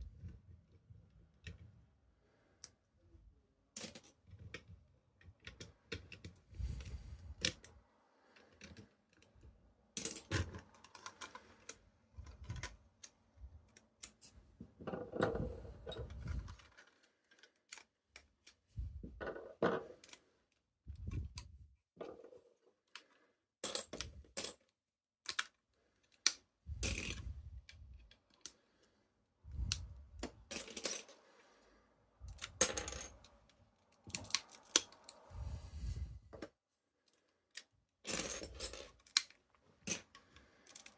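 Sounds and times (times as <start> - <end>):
small plastic clicks and rattles: 3.7 - 23.2, 23.8 - 28.6, 32.2 - 35.2, 37.0 - 40.9.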